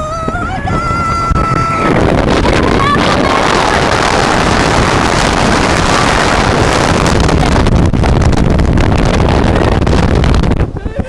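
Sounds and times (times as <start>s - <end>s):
wind blowing across microphone: 0.0s - 11.0s
road and vehicle noise: 1.4s - 10.7s.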